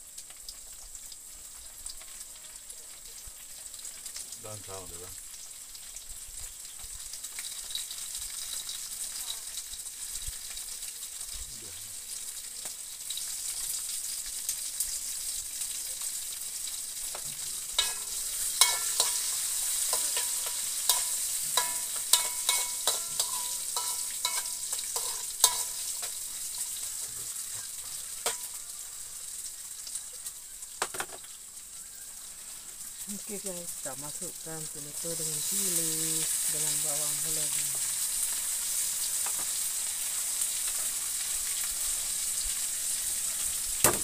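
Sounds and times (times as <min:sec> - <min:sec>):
food sizzling in hot oil: 0:00.0 - 0:44.0
spatula knocking against wok: 0:20.0 - 0:25.8.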